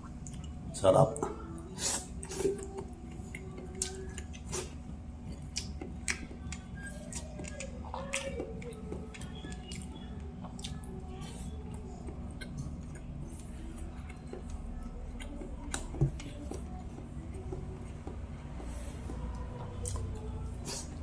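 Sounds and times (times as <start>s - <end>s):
chewing food: 0.0s - 21.0s
steady low hum: 0.0s - 21.0s.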